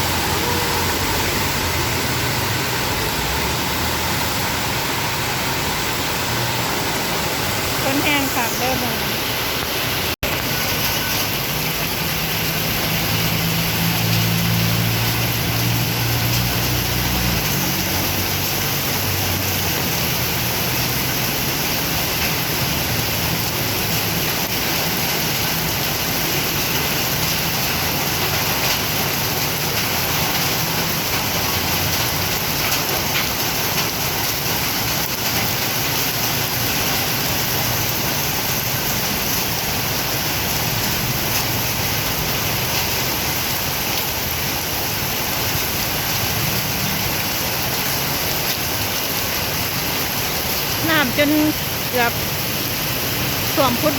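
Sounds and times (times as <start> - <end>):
heavy rain hissing: 0.0 - 53.9
vehicle engine rumbling past: 10.7 - 21.3.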